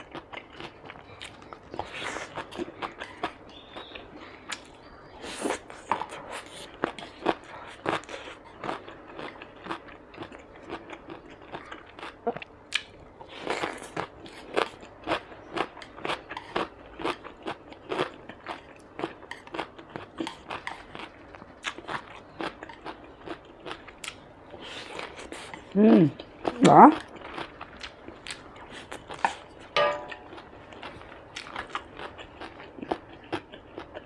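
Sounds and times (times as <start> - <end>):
person chewing food: 0.0 - 34.0.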